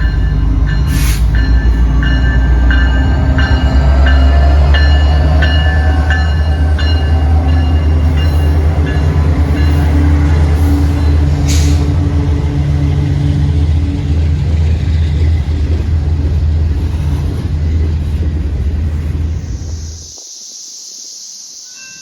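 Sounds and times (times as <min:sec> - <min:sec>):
train rumbling past: 0:00.0 - 0:20.2
brief hiss: 0:11.4 - 0:11.9.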